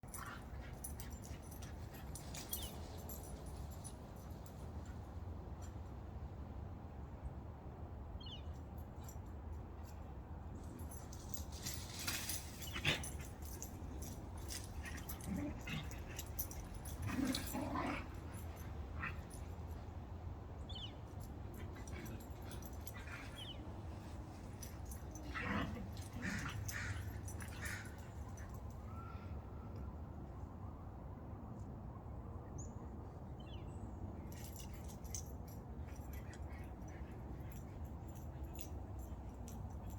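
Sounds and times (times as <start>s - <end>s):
low background hum: 0.0s - 39.9s.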